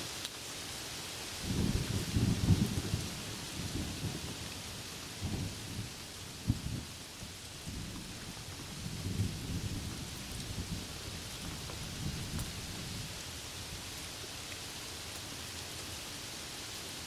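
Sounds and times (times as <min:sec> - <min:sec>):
rain hissing: 0:00.0 - 0:17.0
low rolling thunder: 0:01.4 - 0:13.2.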